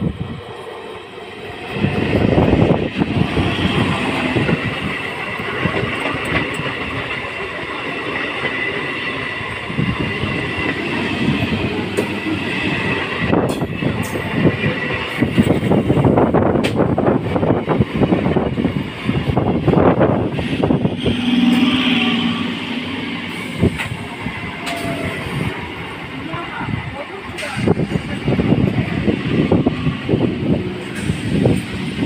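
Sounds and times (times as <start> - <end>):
train high whine: 0.0 - 32.0
train wheels clattering: 1.8 - 22.3.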